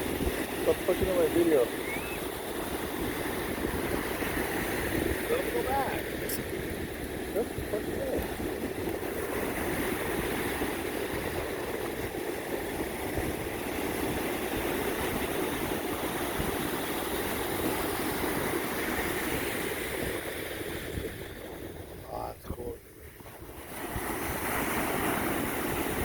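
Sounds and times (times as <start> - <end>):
surf rushing: 0.0 - 26.0
wind on microphone: 0.0 - 26.0.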